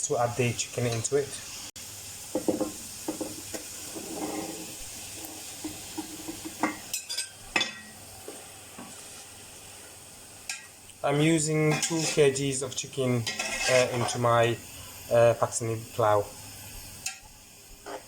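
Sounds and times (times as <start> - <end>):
masala sizzling in a pot: 0.0 - 18.0
utensil scraping and knocking pot: 2.3 - 7.9, 11.6 - 12.4, 13.2 - 14.4.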